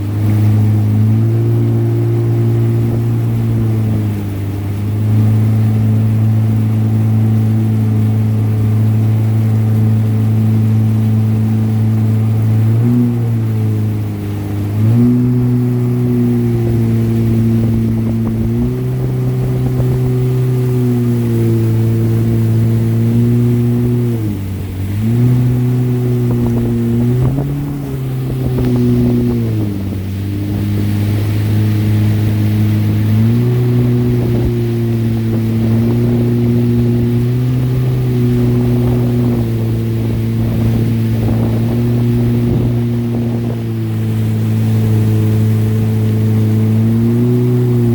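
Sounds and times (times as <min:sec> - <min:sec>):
jet ski engine running: 0:00.0 - 0:47.9.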